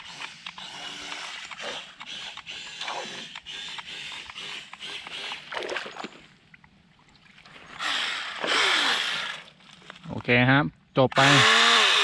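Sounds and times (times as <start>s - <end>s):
toy boat electric motor buzzing: 0.0s - 5.5s, 7.8s - 9.5s, 11.2s - 12.0s.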